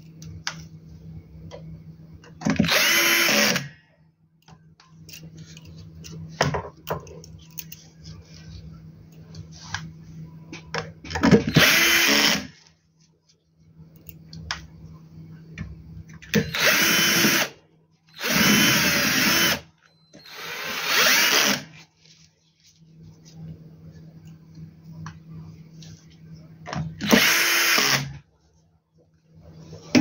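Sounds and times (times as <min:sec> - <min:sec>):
electric screwdriver running: 0:02.6 - 0:03.7, 0:11.5 - 0:12.5, 0:16.4 - 0:17.5, 0:18.1 - 0:19.6, 0:20.2 - 0:21.7, 0:27.0 - 0:28.1.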